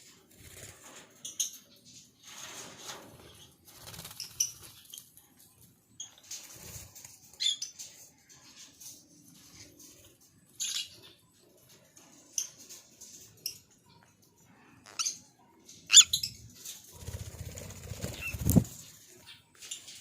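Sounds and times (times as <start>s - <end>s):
wings flapping: 2.4s - 5.0s, 16.7s - 19.0s
birds chirping: 3.2s - 20.0s.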